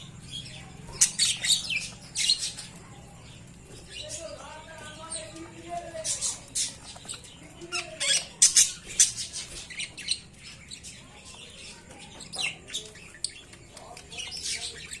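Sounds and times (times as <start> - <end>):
budgerigars chattering and squawking: 0.0 - 15.0.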